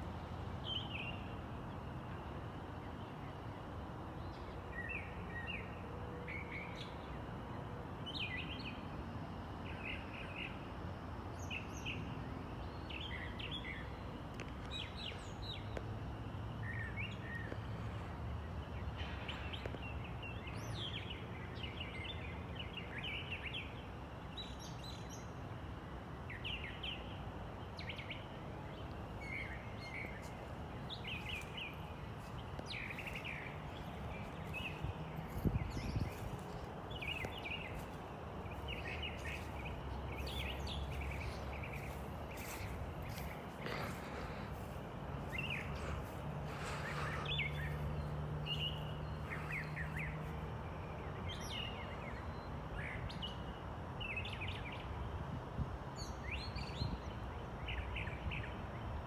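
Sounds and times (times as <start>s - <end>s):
low background noise: 0.0s - 59.0s
birds chirping: 26.3s - 53.5s.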